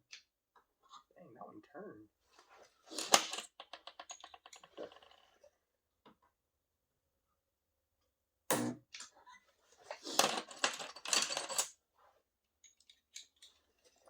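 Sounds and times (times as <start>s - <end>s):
metal tools clattering: 10.1s - 11.8s.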